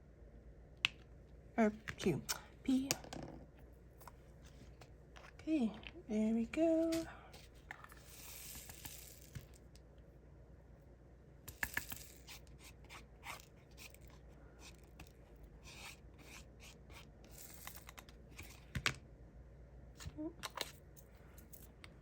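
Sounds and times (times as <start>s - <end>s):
rustling and scraping: 3.1s - 6.0s, 6.6s - 9.6s, 11.8s - 18.7s.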